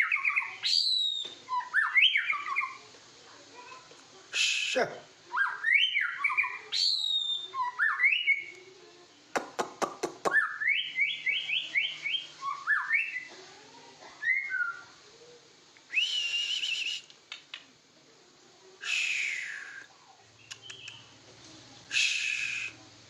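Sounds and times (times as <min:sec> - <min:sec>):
bird whistling song: 0:00.0 - 0:02.8, 0:04.4 - 0:08.6, 0:10.2 - 0:13.3, 0:14.2 - 0:14.9, 0:15.9 - 0:17.1, 0:18.8 - 0:21.1, 0:21.9 - 0:22.8
sharp clicks: 0:17.0 - 0:17.7, 0:20.4 - 0:21.0.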